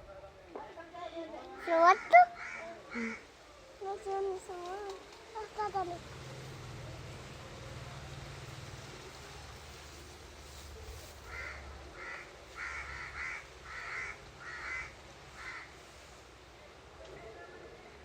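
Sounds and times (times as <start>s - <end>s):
bird harsh caw-like calls: 1.7s - 3.3s, 11.3s - 15.8s.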